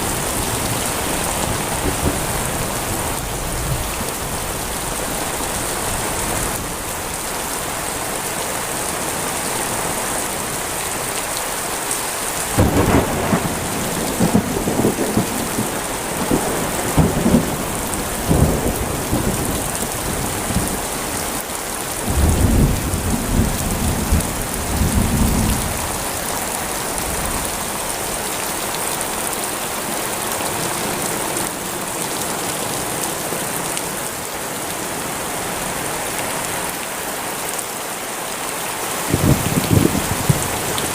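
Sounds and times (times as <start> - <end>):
thunder rumbling: 0.0 - 5.4, 12.6 - 21.0, 22.0 - 26.3, 39.1 - 40.9
heavy rain falling: 0.0 - 40.9.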